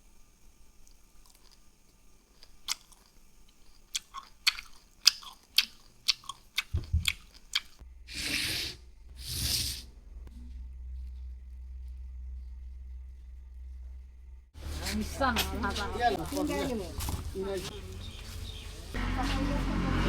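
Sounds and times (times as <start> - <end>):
crunching of food: 0.8 - 7.8.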